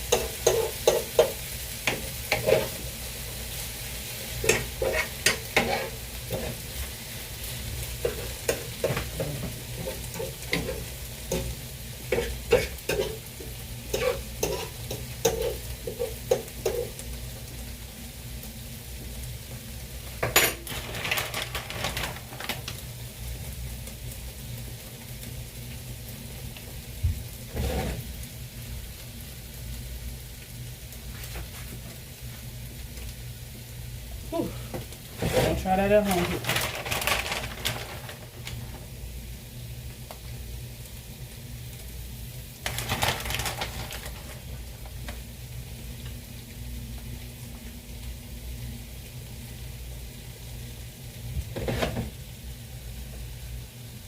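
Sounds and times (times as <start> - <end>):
pots and pans clattering: 0.0 - 2.8, 4.4 - 6.6, 8.0 - 17.0, 20.2 - 22.6, 51.5 - 52.2
food sizzling in a pan: 0.0 - 54.0.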